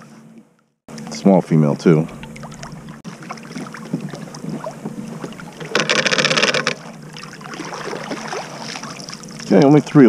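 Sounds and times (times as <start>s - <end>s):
small water splashes: 2.0s - 6.0s, 6.8s - 9.9s
loud fast rattle: 5.6s - 6.8s.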